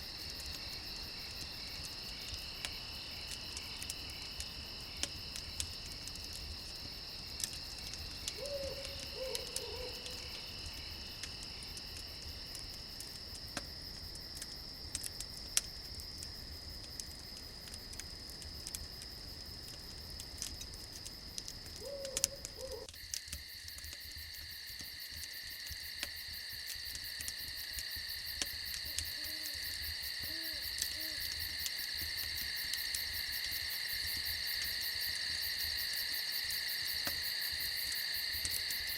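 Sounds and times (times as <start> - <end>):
campfire crackling: 0.0 - 38.9
crickets chirring: 0.0 - 38.9
owl hooting: 8.4 - 10.2, 21.8 - 22.9.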